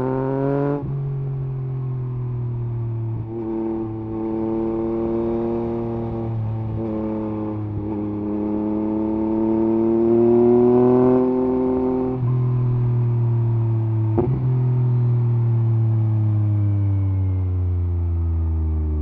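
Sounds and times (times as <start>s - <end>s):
motorcycle engine revving: 3.2s - 14.9s.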